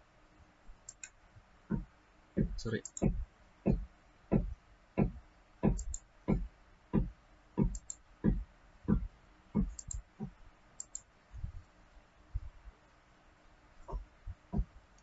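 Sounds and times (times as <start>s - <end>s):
computer keys or mouse clicking: 0.8s - 1.2s, 2.6s - 3.2s, 5.7s - 6.4s, 7.6s - 8.0s, 9.6s - 10.1s, 10.8s - 11.1s.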